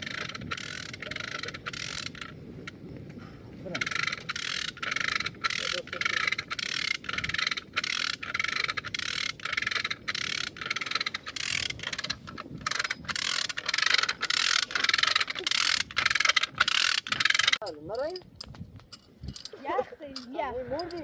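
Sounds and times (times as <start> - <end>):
rhythmic rasping strokes: 3.6 - 18.2.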